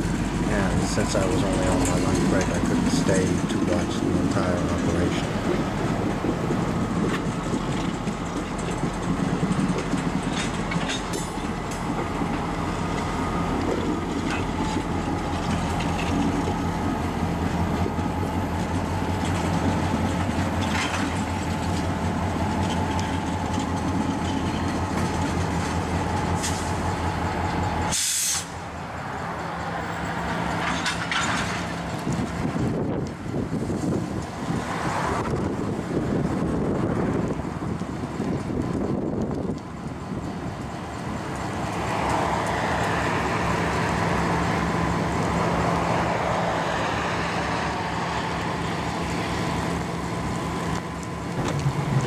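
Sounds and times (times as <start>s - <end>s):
rolling stock clanks: 0.0s - 28.6s, 30.3s - 34.6s
diesel locomotive engine running: 0.0s - 52.0s
brief hiss: 27.9s - 28.6s.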